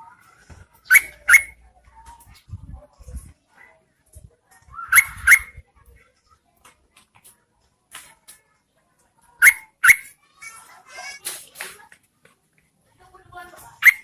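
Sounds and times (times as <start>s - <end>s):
bird calling sharp notes: 0.8s - 1.6s, 4.8s - 5.6s, 9.4s - 10.1s.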